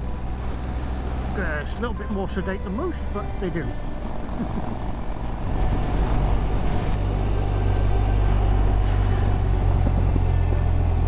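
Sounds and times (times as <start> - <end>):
motorcycle engine: 3.2 - 11.0
wind noise: 3.9 - 11.0.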